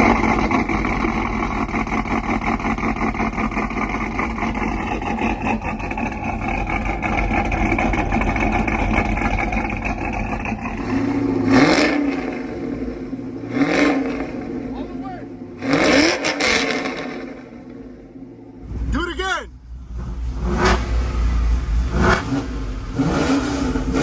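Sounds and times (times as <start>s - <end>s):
truck engine with choppy idle: 0.0s - 11.5s, 17.2s - 24.0s
engine revving: 0.0s - 18.0s, 18.6s - 24.0s.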